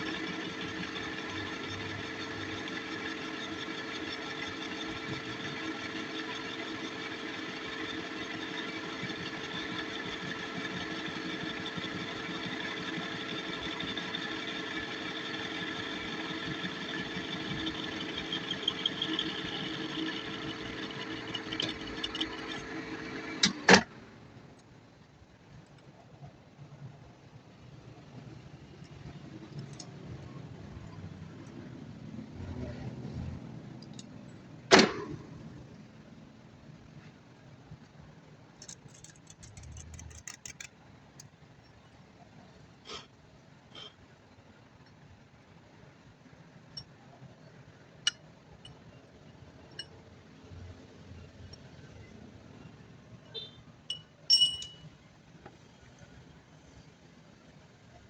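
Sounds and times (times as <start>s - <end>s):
metal lathe humming: 0.0s - 23.5s
light clicks and rattles: 38.6s - 41.4s.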